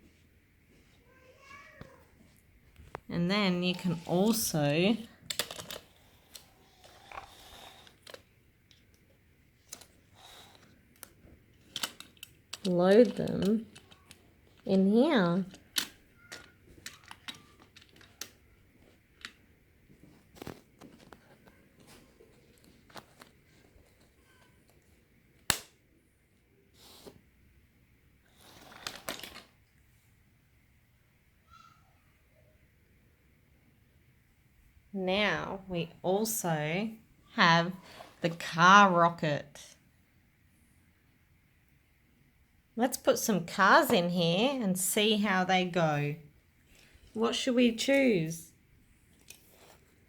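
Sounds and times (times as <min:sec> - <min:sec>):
plastic toy cars clicking: 0:03.8 - 0:14.8, 0:15.4 - 0:19.4, 0:28.3 - 0:29.6.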